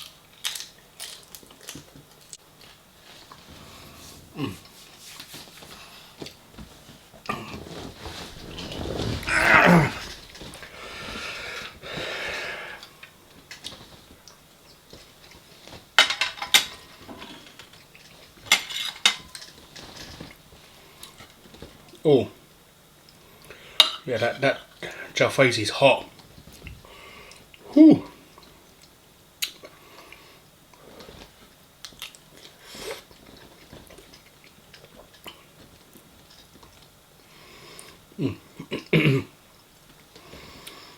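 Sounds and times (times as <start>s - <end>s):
person chewing: 0.0s - 4.9s, 31.8s - 36.8s
breathy rustle: 3.0s - 12.9s
person breathing: 9.0s - 12.9s, 23.4s - 23.8s, 26.8s - 27.4s.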